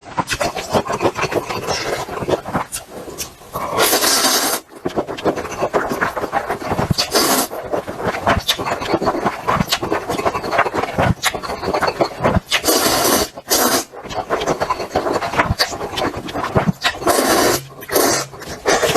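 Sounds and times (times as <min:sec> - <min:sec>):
person chewing and crunching: 0:00.2 - 0:18.9
hissing bursts: 0:02.7 - 0:04.7, 0:07.0 - 0:07.6, 0:12.5 - 0:14.0, 0:16.8 - 0:18.9.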